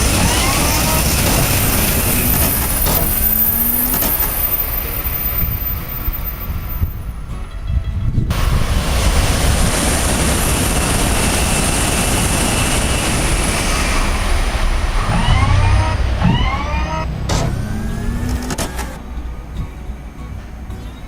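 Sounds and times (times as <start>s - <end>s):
siren-like whoops: 0.0s - 5.7s, 15.0s - 19.0s
train passing rushing noise: 0.0s - 20.8s.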